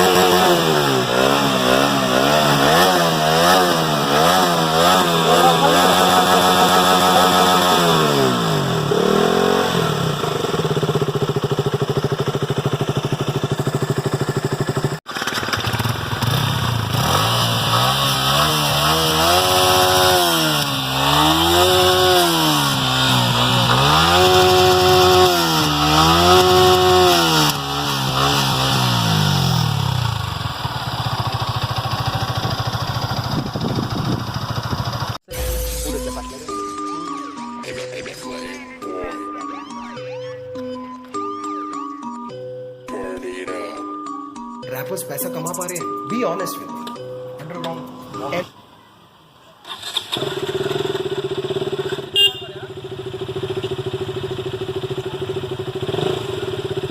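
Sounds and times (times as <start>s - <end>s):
motorcycle engine revving: 0.0s - 37.7s, 49.6s - 56.9s.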